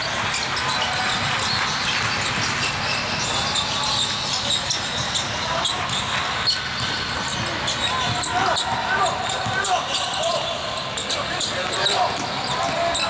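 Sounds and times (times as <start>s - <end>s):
basketball bouncing on court: 0.3s - 10.1s
shoe squeaks and knocks: 0.3s - 13.0s.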